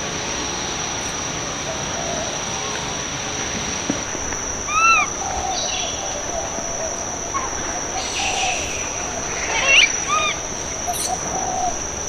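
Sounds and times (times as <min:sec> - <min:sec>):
high-pitched insect drone: 0:00.2 - 0:12.0
short rising-and-falling call: 0:08.0 - 0:11.2.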